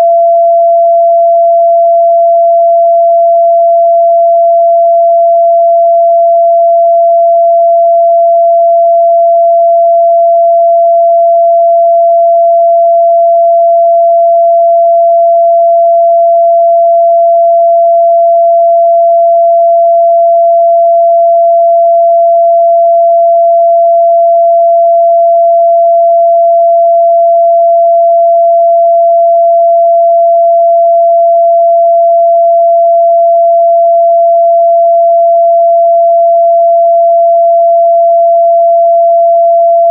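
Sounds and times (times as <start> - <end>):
sine test tone: 0.0 - 39.9.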